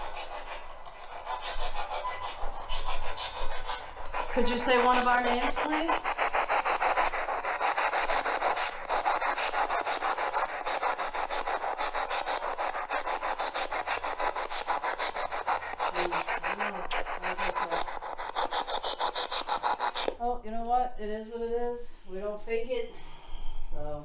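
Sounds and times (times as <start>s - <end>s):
faint voice snatches: 0.0s - 20.2s
rapid chopping radio static: 0.0s - 20.2s.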